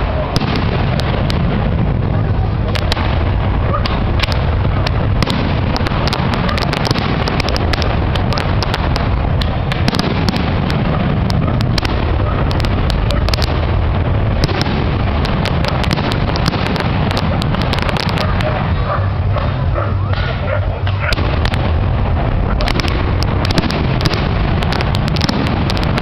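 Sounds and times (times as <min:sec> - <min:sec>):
continuous low rumble: 0:00.0 - 0:26.0
fireworks shells cracking and popping: 0:03.8 - 0:18.6, 0:20.9 - 0:26.0.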